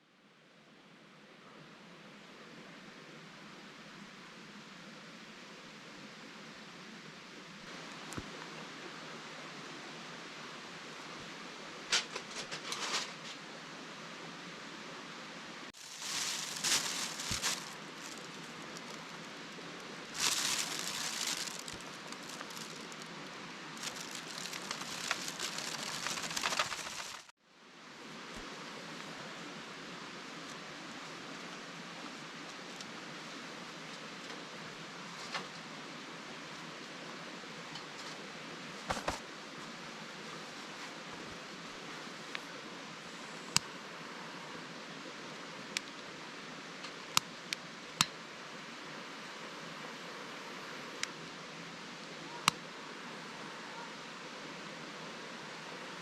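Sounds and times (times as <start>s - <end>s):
campfire crackling and hissing: 15.6s - 37.4s
campfire crackling and popping: 15.8s - 19.2s, 20.2s - 23.1s, 23.8s - 27.3s.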